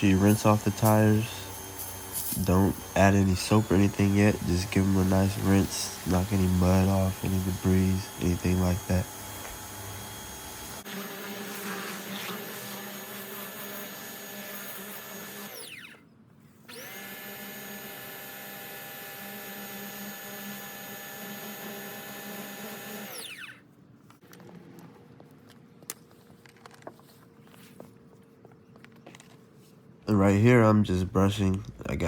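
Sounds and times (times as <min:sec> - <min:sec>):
pressure washer motor: 0:00.0 - 0:16.0, 0:16.7 - 0:23.6.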